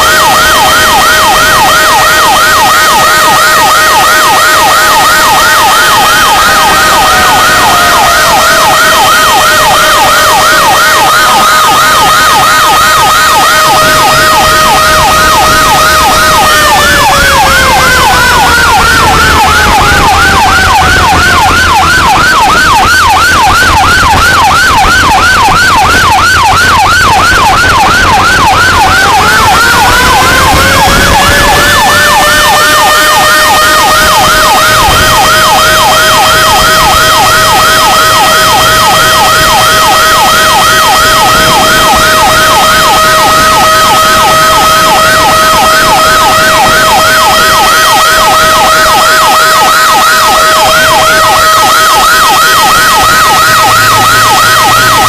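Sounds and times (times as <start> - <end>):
fire engine siren yelping: 0.0 - 55.0
siren steady tone: 0.0 - 55.0
low engine rumble: 11.3 - 39.6.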